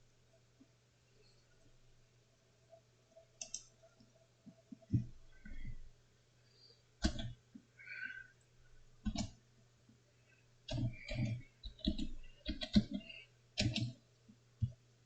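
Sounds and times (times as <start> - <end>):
faint low steady hum: 0.0 - 15.0
computer mouse clicks: 3.4 - 3.7, 7.0 - 7.4, 9.0 - 9.4, 10.7 - 14.0.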